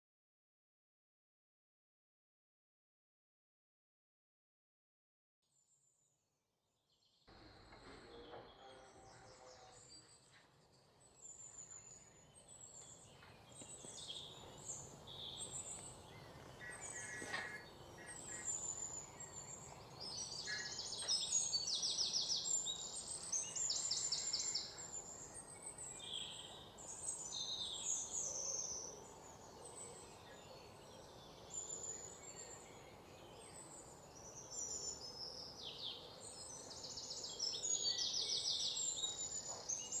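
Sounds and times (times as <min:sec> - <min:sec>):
small birds chirping: 0:07.0 - 0:40.0
bird trill: 0:11.4 - 0:40.0.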